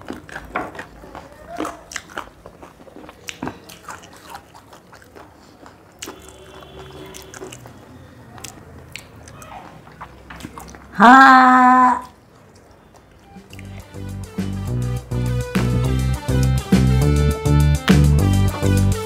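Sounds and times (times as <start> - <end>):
chewing: 0.0 - 11.0, 12.0 - 13.9
lip smacks and mouth clicks: 0.0 - 11.0, 12.0 - 13.9.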